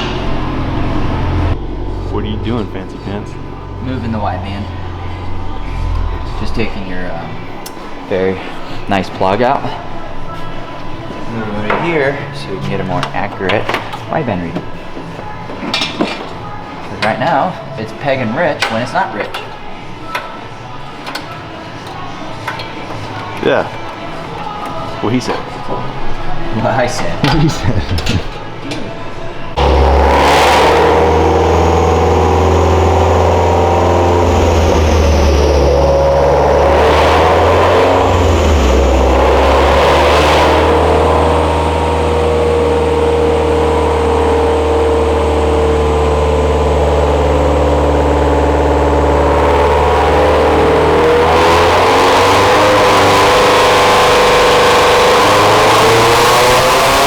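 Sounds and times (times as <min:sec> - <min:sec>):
turbocharged car engine under load: 0:00.0 - 0:08.6, 0:29.5 - 0:57.0.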